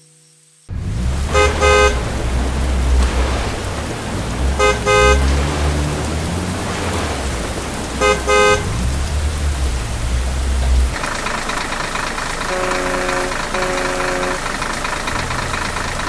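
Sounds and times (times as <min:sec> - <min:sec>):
deep engine rumble: 0:00.7 - 0:16.0
vehicle horn toots: 0:01.2 - 0:03.4, 0:04.4 - 0:06.2, 0:08.0 - 0:09.0, 0:12.4 - 0:14.6.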